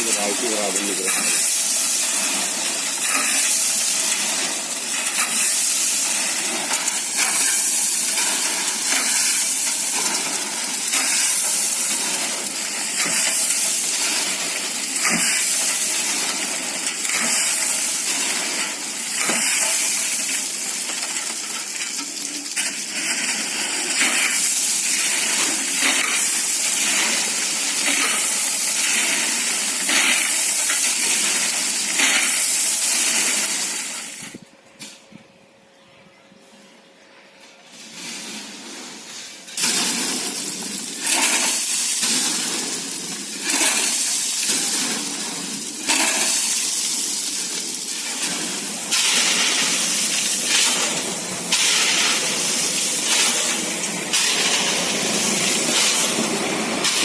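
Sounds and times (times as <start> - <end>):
metal tools scraping concrete: 0.0 - 13.8, 37.7 - 57.0
concrete rushing from truck: 38.0 - 57.0.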